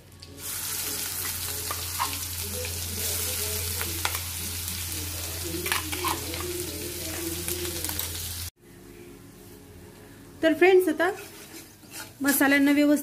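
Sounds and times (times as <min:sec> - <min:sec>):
paste sizzling in hot oil: 0:00.4 - 0:08.5, 0:11.1 - 0:12.7.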